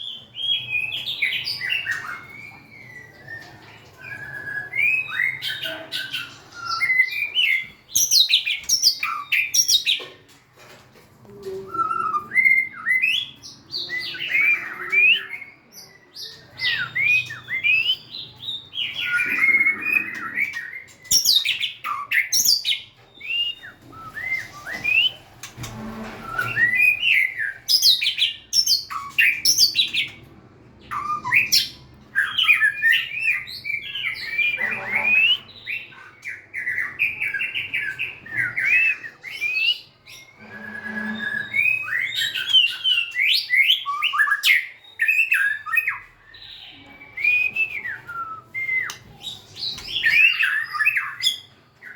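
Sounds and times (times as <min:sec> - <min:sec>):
bird singing whistled notes: 0:30.9 - 0:51.9.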